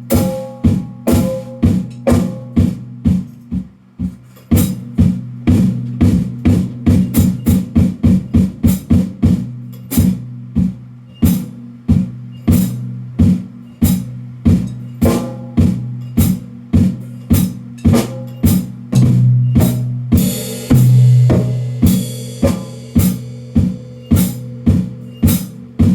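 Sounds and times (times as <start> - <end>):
cymbal crash: 0.0 - 3.3, 11.2 - 25.9
drum strokes: 0.0 - 25.9
low ringing drum tone: 0.0 - 25.9.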